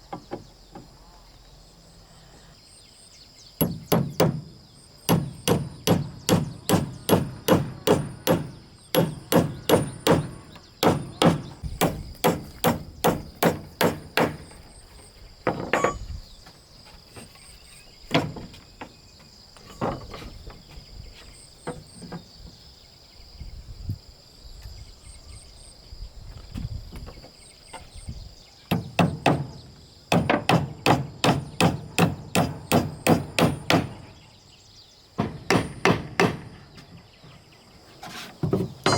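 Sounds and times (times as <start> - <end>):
hammer blows on wood: 5.1 - 14.6.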